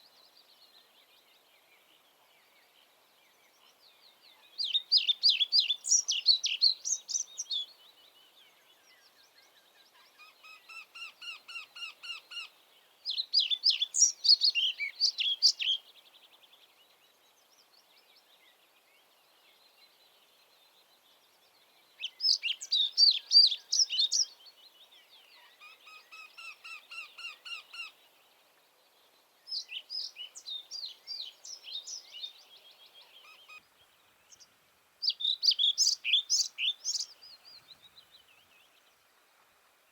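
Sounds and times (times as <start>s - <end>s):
quieter bird song: 0.0s - 39.9s
bird high-pitched song: 4.6s - 7.8s, 13.1s - 15.9s, 22.0s - 24.4s, 29.5s - 33.6s, 34.3s - 38.0s.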